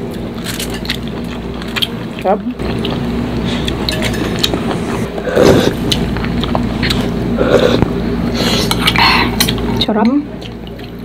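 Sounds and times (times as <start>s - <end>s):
steady low hum: 0.0s - 11.0s
chewing and mouth clicks: 5.8s - 7.2s, 8.7s - 11.0s.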